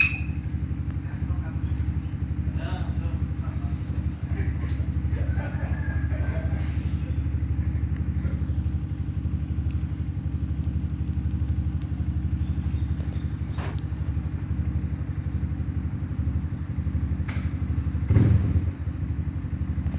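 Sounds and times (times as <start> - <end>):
short high chirps: 0.0 - 0.4
small engine running: 0.0 - 19.9
click: 10.6 - 12.0.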